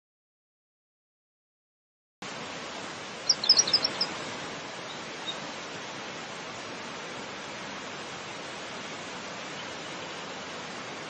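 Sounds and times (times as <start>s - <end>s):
steady outdoor hiss: 2.2s - 11.0s
small bird chirping: 3.2s - 4.1s.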